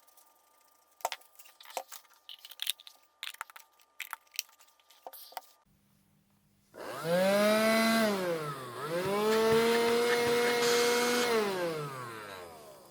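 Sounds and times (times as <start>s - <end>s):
vacuum cleaner motor whine: 6.8s - 12.9s.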